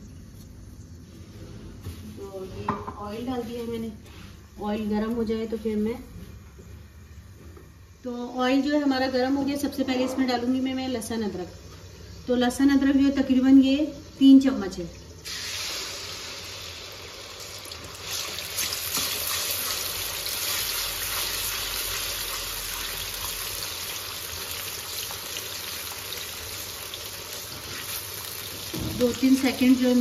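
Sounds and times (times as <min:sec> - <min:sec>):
paste sizzling in hot oil: 0:15.1 - 0:30.0.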